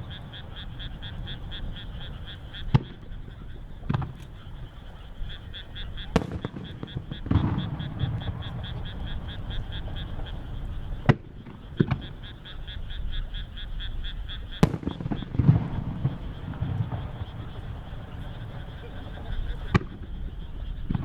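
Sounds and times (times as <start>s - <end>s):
firework shells booming: 0.0s - 12.8s, 14.4s - 21.0s
fast pulsing animal call: 0.0s - 20.9s
firework crackling: 5.6s - 12.3s, 14.6s - 20.2s.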